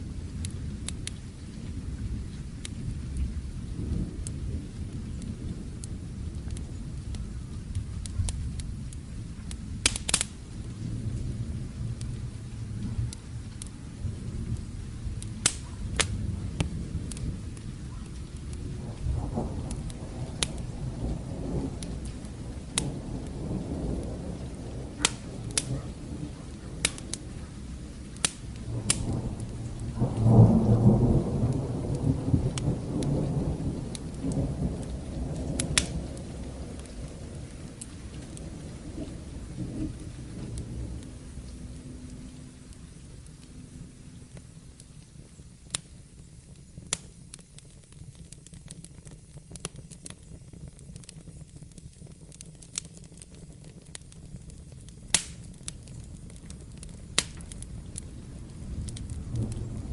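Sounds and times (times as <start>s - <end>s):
distant thunder rumbling: 0.0s - 47.9s, 52.4s - 59.9s
fire crackling and popping: 0.0s - 59.9s
rain: 0.0s - 59.9s.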